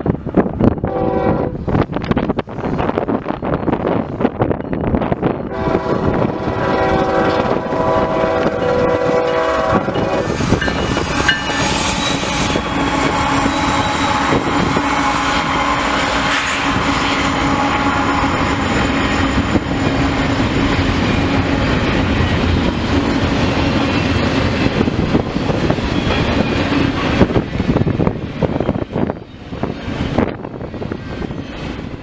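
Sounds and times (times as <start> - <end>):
locomotive horn: 0.9 - 1.6, 5.5 - 19.3
train wheels clattering on rails: 1.6 - 32.0.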